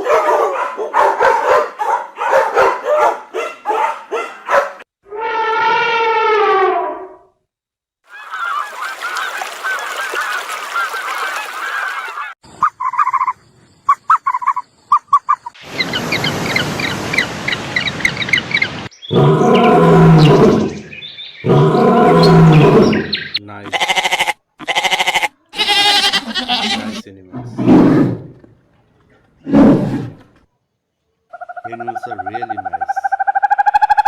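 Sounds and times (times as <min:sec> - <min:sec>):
low drawn-out animal call: 0:05.0 - 0:07.4, 0:19.1 - 0:20.8, 0:21.4 - 0:28.5
geese honking: 0:08.1 - 0:13.1.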